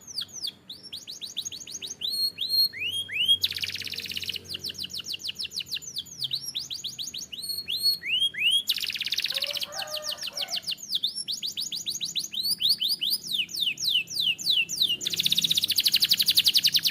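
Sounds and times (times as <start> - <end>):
canary singing trills: 0.0 - 16.9.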